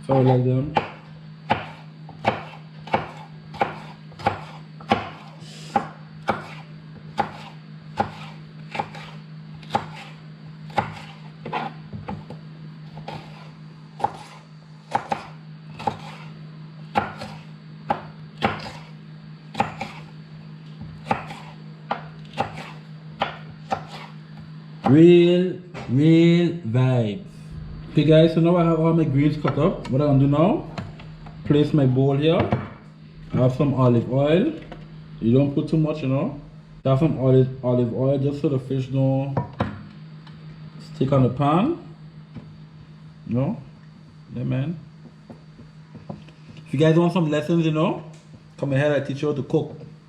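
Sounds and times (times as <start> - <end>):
knife chopping on cutting board: 0.1 - 20.1, 20.8 - 25.0.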